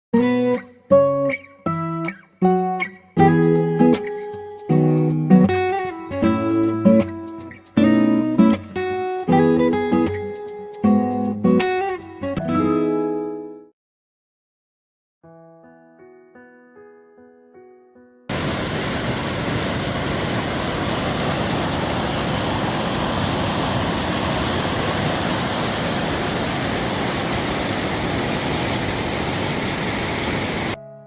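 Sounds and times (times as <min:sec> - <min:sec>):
soft piano music: 0:00.2 - 0:13.7, 0:15.2 - 0:18.3, 0:30.8 - 0:31.0
waterfall rushing: 0:18.3 - 0:30.8.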